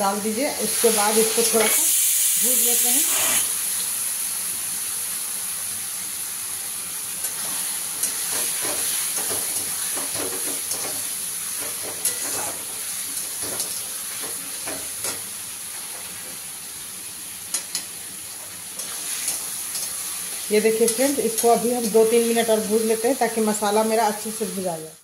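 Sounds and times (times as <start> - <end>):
masala sizzling in oil: 0.0 - 25.0
spatula scraping pan: 8.0 - 12.7
tongs clinking on pan rim: 12.0 - 12.6.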